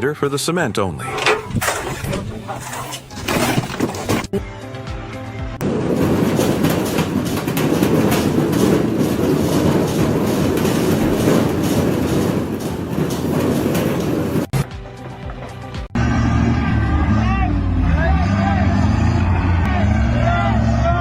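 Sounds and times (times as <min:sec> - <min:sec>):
machinery rattling clatter: 0:01.0 - 0:04.3, 0:05.6 - 0:16.0.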